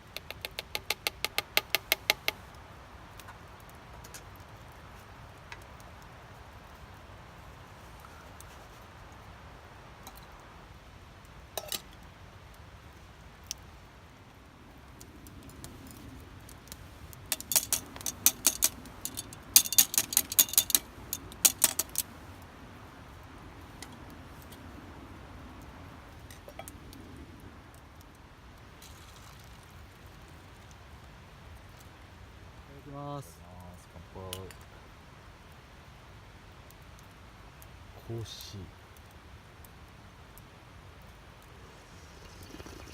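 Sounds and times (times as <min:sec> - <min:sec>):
cookware clinking: 0:17.3 - 0:20.8.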